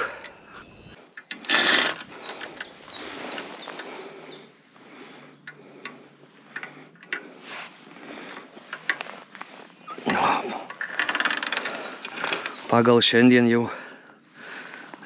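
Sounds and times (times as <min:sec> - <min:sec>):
small bird chirping: 0:02.0 - 0:05.4.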